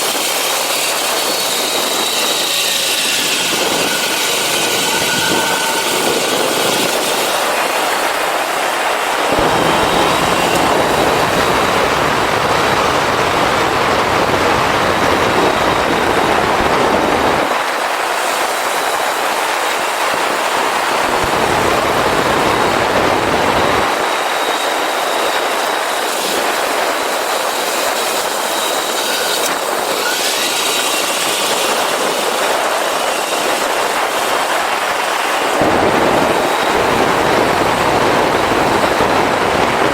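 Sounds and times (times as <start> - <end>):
wind rushing over microphone: 0.0 - 39.9
motorcycle engine running: 9.2 - 17.2
deep rumble: 9.3 - 17.3.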